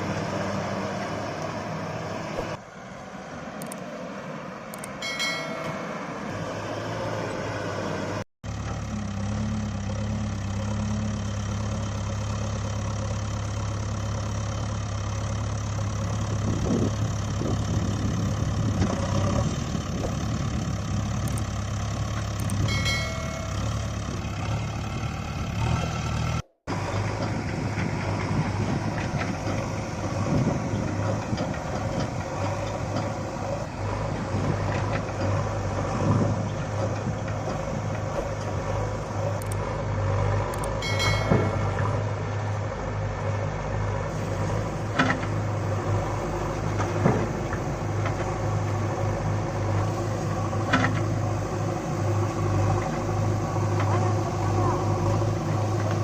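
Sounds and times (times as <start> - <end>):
sharp metal clanks: 5.0 - 6.0, 22.6 - 23.8, 40.8 - 42.2
heavy machine engine running: 5.7 - 56.0.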